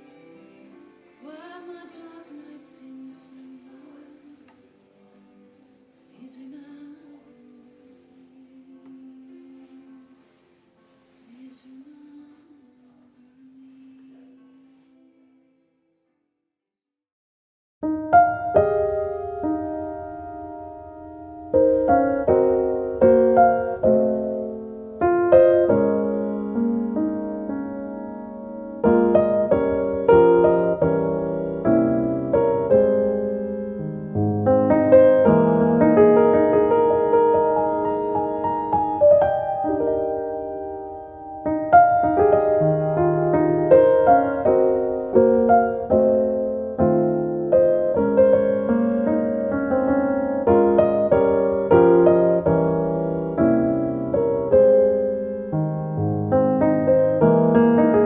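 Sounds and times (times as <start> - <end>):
gentle piano music: 0.0 - 12.6, 17.8 - 58.0.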